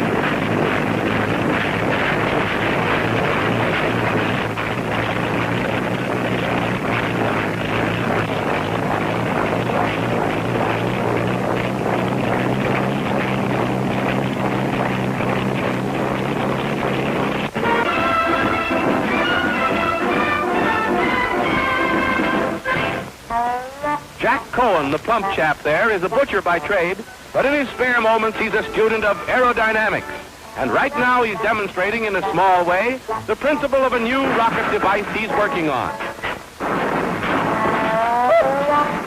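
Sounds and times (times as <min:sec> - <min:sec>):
propeller aircraft engine: 0:00.0 - 0:23.0.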